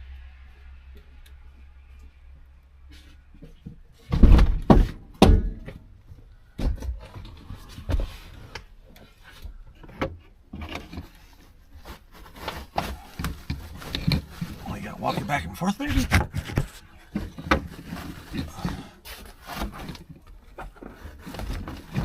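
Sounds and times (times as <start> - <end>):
knocks and thuds of panel: 4.1 - 5.8.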